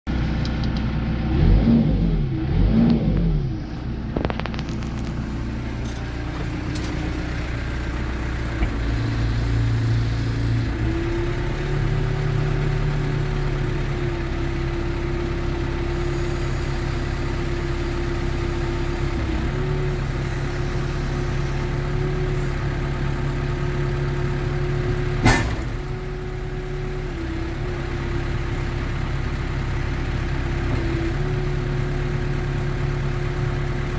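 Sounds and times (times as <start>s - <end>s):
diesel engine revving and running: 0.1s - 33.9s
sharp knock: 25.2s - 25.8s.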